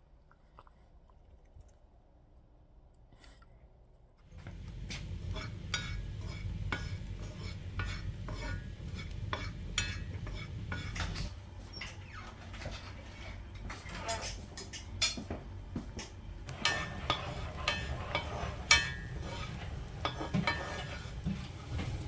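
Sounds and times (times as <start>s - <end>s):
utensil stirring in a container: 4.4s - 11.9s, 16.5s - 22.0s.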